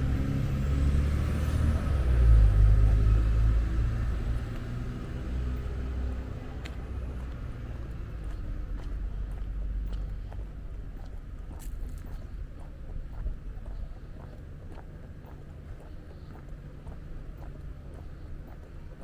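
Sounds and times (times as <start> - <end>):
vehicle engine driving past: 0.0 - 10.8.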